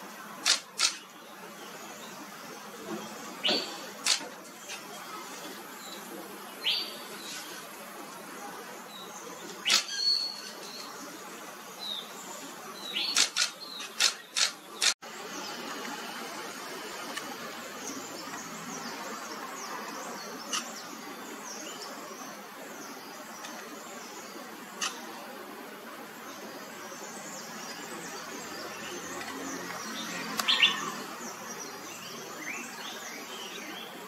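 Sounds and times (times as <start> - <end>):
outdoor background noise: 0.0 - 34.0
small birds chirping: 0.0 - 34.0
sharp clicks: 0.4 - 1.0, 4.0 - 4.3, 13.1 - 15.0.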